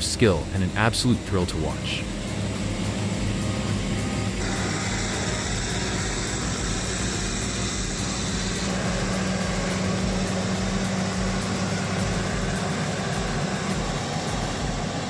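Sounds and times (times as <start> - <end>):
truck engine running under load: 0.0 - 15.0.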